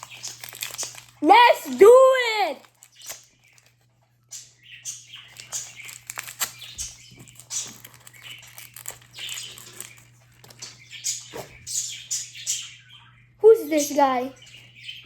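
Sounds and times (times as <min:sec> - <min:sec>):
plastic packaging crinkling: 0:00.0 - 0:03.8, 0:05.1 - 0:10.9.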